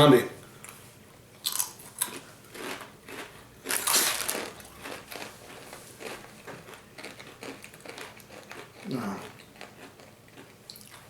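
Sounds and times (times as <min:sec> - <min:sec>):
chewing crunchy chips: 0:01.4 - 0:11.0.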